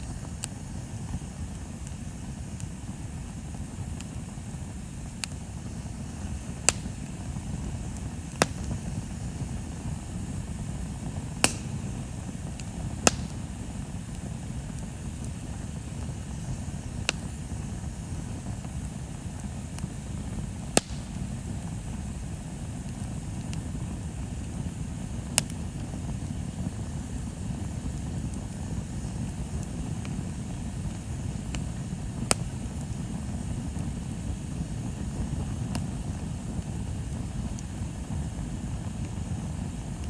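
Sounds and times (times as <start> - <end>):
bonfire rumble: 0.0 - 40.0
wood crackling pops: 5.1 - 20.0, 20.7 - 21.7, 31.5 - 32.8.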